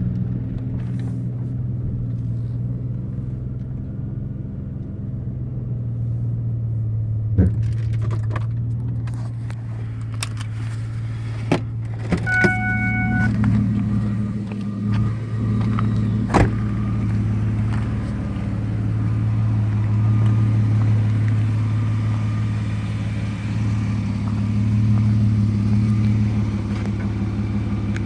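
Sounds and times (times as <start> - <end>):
car engine humming: 0.0 - 28.0
short electronic beep: 12.2 - 13.5.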